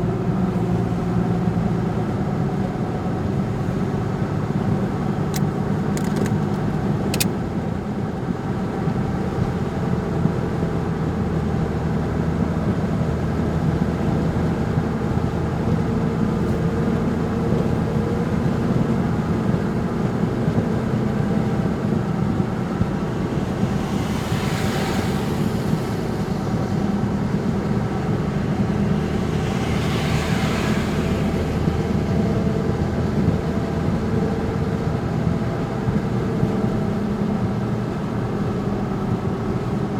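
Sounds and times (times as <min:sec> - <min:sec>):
tyre hiss of passing traffic: 0:00.0 - 0:39.9
vehicle driving on wet road: 0:00.0 - 0:39.9.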